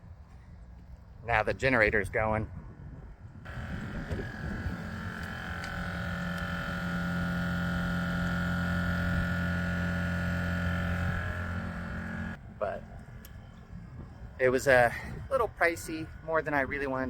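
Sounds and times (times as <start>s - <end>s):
air compressor humming: 3.5s - 12.4s.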